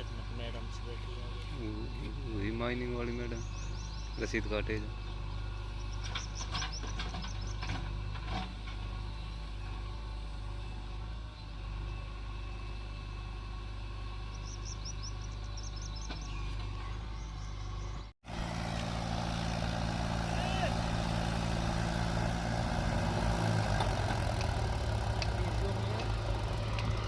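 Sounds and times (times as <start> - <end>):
bird chirps: 3.0 - 7.7, 14.3 - 18.1
diesel engine idling: 8.8 - 27.0.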